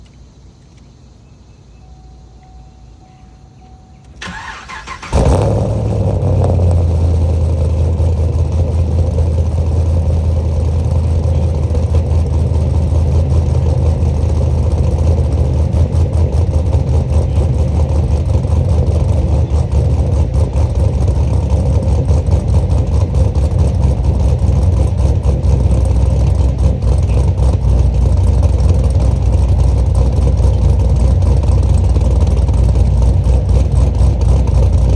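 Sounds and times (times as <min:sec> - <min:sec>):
car engine idling: 0:00.0 - 0:34.9
starter cranking: 0:04.1 - 0:05.8.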